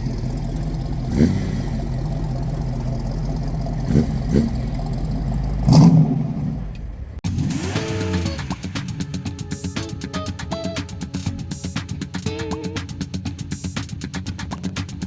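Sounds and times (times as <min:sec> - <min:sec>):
car engine idling: 0:00.0 - 0:09.8.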